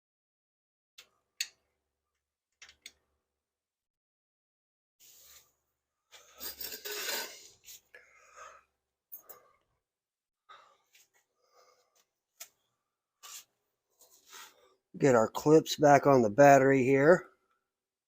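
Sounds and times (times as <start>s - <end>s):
hands rubbing and scraping: 13.2s - 14.7s.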